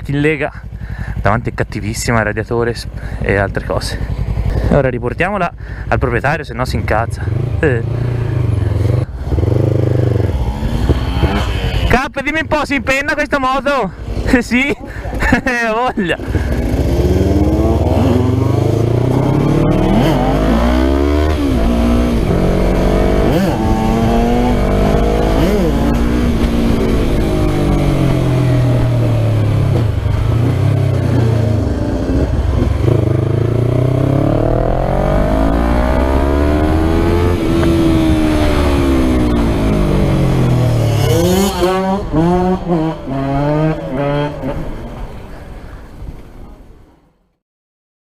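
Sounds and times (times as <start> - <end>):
motorcycle engine revving: 3.9 - 4.8, 6.7 - 12.7, 15.1 - 45.2.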